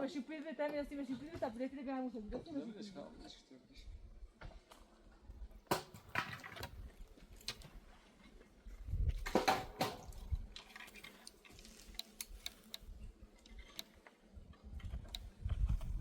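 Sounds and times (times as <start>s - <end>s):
knocks and rustling: 9.0s - 12.8s
light clicks and taps: 9.8s - 16.0s.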